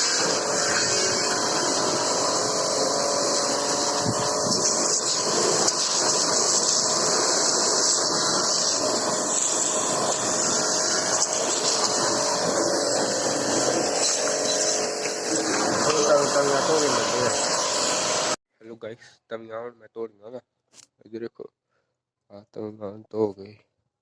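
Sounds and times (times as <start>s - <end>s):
pressure washer water spray: 0.0s - 18.4s
steady machine hum: 0.0s - 18.4s.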